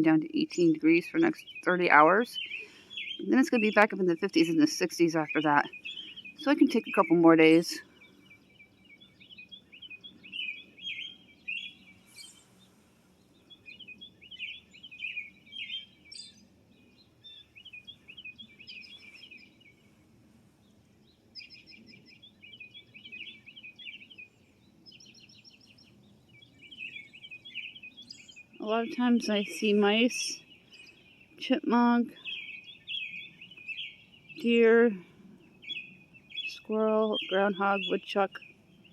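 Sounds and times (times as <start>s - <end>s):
other birds chirping: 0.0s - 38.9s
robin singing: 0.0s - 38.9s
rapid bird trill: 0.2s - 12.7s.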